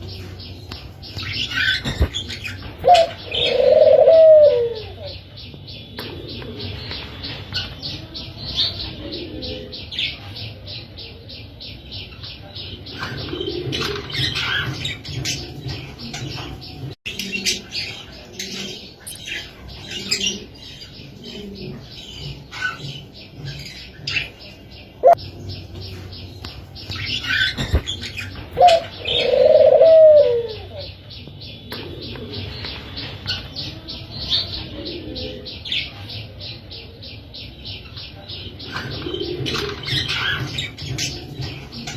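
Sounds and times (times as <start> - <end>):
doves cooing: 1.3 - 5.2, 5.9 - 8.0, 8.7 - 10.5, 12.8 - 24.4, 27.0 - 31.0, 31.7 - 36.2, 38.5 - 41.9.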